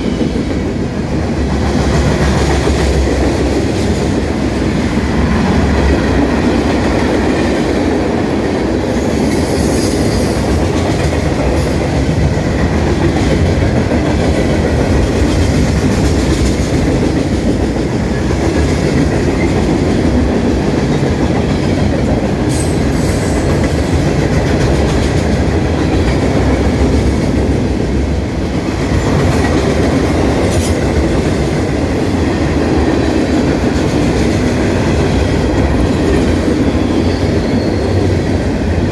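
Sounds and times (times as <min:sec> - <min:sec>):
freight train wheels rumbling: 0:00.0 - 0:38.9
high-pitched wheel squeals: 0:09.1 - 0:10.5, 0:35.9 - 0:38.1.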